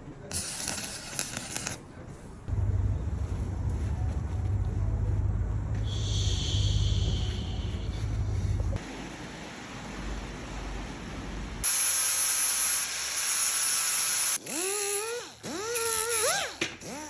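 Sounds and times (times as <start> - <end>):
loud hiss: 0.3 - 1.8, 5.9 - 7.9, 11.6 - 14.4.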